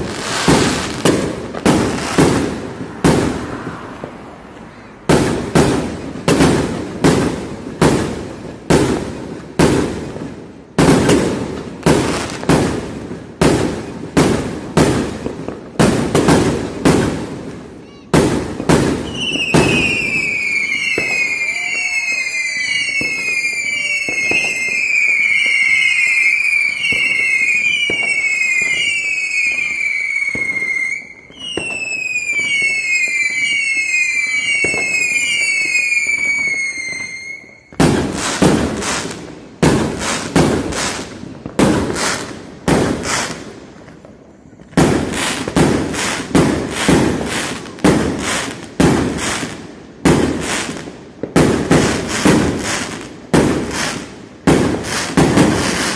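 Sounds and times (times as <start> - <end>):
loud firework bangs: 0.0 - 55.9
firework whistles falling in pitch: 19.0 - 39.2.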